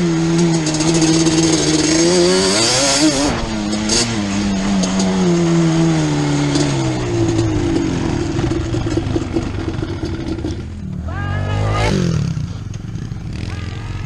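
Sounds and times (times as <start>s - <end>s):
two-stroke engine revving: 0.0s - 14.0s.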